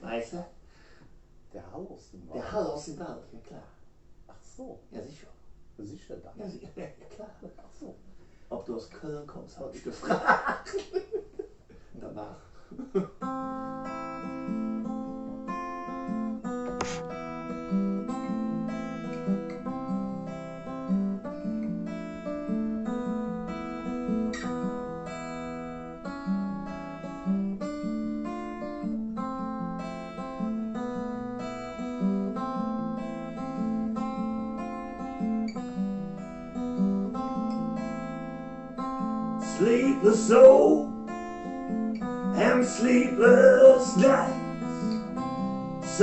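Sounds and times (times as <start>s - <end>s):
acoustic guitar playing: 13.1s - 46.0s.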